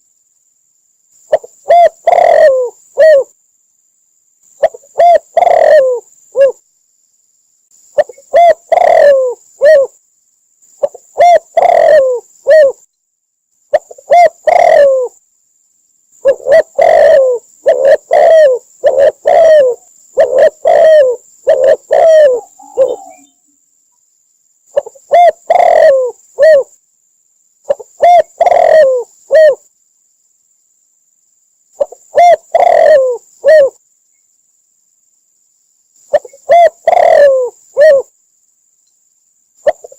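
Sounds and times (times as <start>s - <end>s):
dove cooing: 1.3s - 3.3s, 4.6s - 6.6s, 8.0s - 10.0s, 10.8s - 12.8s, 13.7s - 15.2s, 16.2s - 23.4s, 24.7s - 26.8s, 27.7s - 29.6s, 31.8s - 33.8s, 36.1s - 38.1s, 39.6s - 39.9s.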